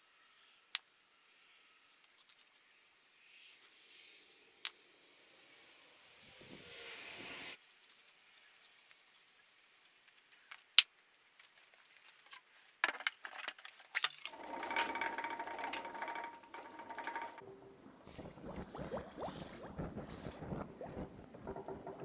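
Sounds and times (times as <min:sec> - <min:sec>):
clicks and clatters: 0:12.3 - 0:17.4
small machine running: 0:14.3 - 0:17.4.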